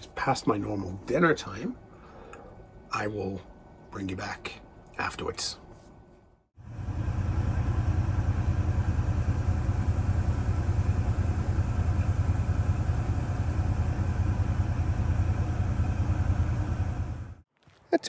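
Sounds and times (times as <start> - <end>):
engine idling: 6.6 - 17.4.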